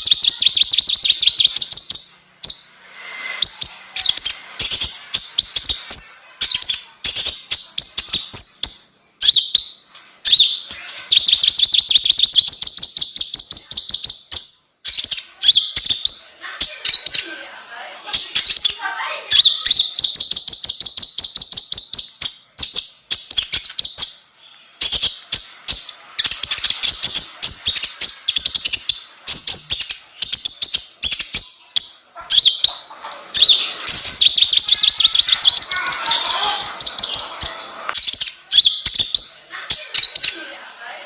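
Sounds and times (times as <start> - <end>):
sunbird chittering twitters: 24.8 - 40.4.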